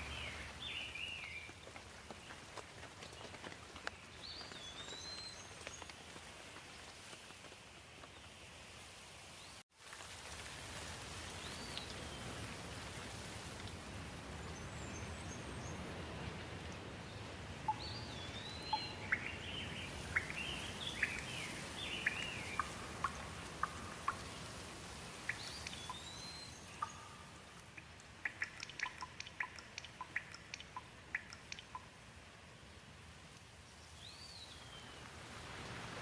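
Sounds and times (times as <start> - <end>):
steady rain: 0.0 - 36.0
birds calling: 17.2 - 24.5
sharp water drips: 17.6 - 32.1.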